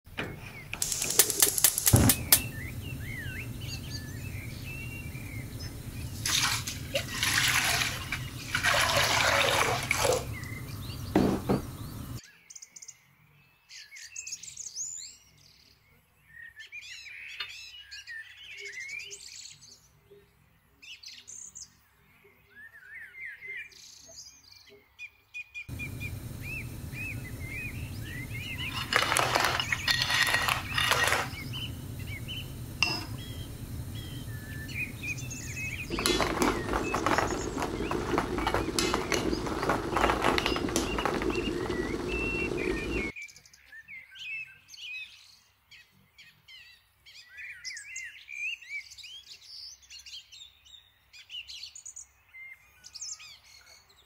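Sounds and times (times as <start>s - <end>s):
small birds chirping: 0.2s - 19.9s, 25.7s - 43.8s
sharp knock: 0.8s - 2.6s
water rushing in frying pan: 0.8s - 12.2s, 25.7s - 43.1s.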